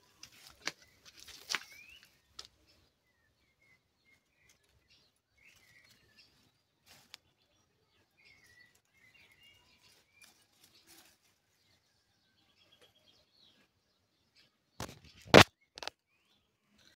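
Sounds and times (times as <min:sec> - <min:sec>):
leaves rustling in hands: 0:00.0 - 0:02.6, 0:05.4 - 0:07.4, 0:08.3 - 0:11.8
faint bird chirps: 0:00.0 - 0:16.9.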